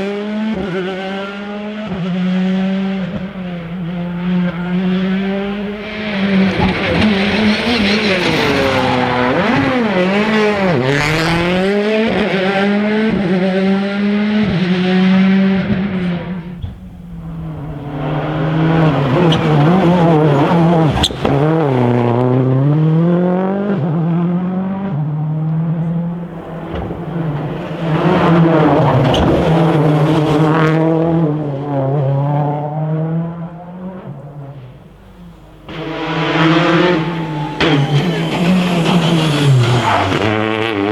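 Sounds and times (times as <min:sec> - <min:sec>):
rally car engines revving: 0:00.0 - 0:40.9
tyre squeal: 0:06.7 - 0:10.2, 0:17.9 - 0:22.0, 0:35.7 - 0:40.4.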